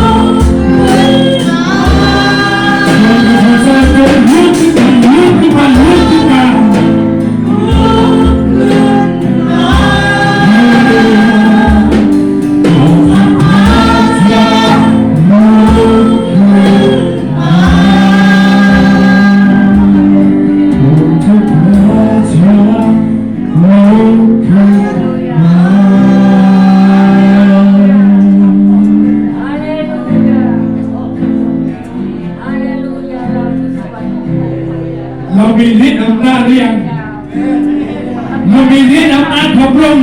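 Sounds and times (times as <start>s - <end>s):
band accompaniment with low beat: 0.0s - 29.5s
congregation singing: 0.0s - 40.0s.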